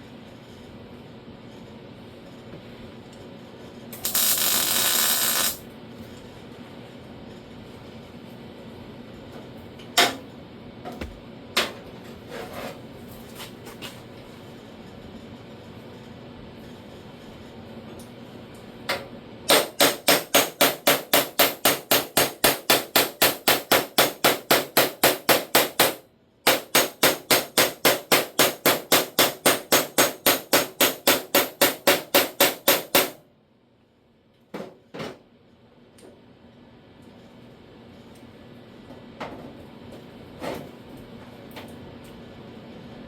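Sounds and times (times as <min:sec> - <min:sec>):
hammer striking sheet metal: 0:04.0 - 0:05.6, 0:19.5 - 0:33.2.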